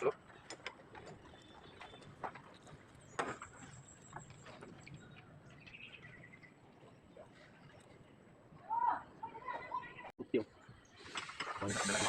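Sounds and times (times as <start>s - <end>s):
faint clicks and knocks: 0.1s - 5.0s.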